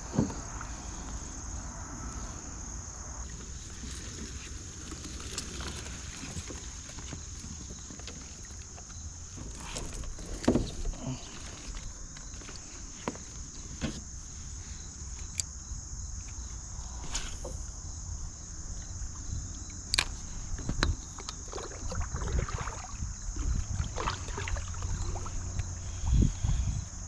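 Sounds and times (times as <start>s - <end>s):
summer insects droning: 0.0s - 27.0s
rustling: 3.5s - 14.1s
kayak handling clicks and knocks: 4.9s - 14.1s.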